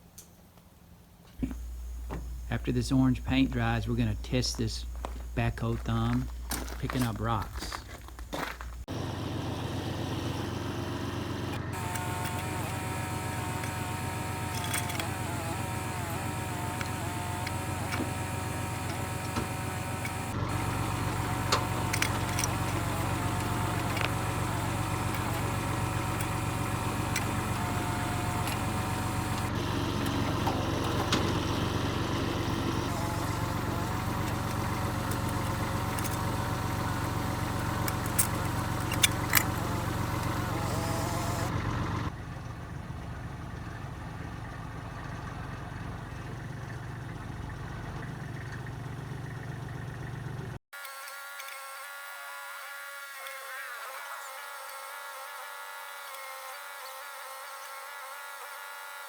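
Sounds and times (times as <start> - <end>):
diesel engine running: 0.7 - 50.6
clicks: 11.3 - 41.6.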